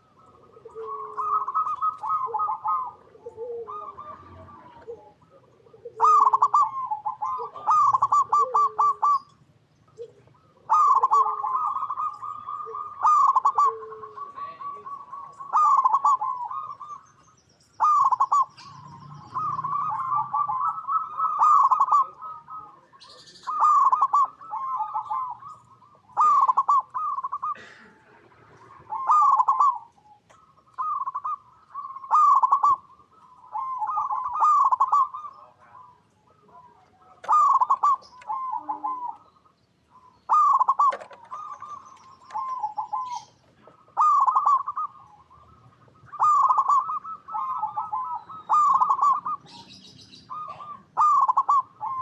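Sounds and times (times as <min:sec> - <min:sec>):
low soft cooing: 0:00.0 - 0:09.3, 0:09.9 - 0:16.9, 0:30.8 - 0:39.3, 0:40.3 - 0:52.0
doves cooing: 0:00.0 - 0:52.0.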